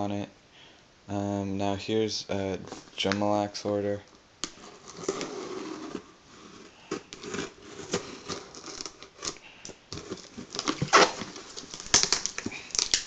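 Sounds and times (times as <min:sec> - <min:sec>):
package scraping: 0:04.4 - 0:13.0
package crinkling: 0:06.7 - 0:13.0
package tearing: 0:06.9 - 0:13.0.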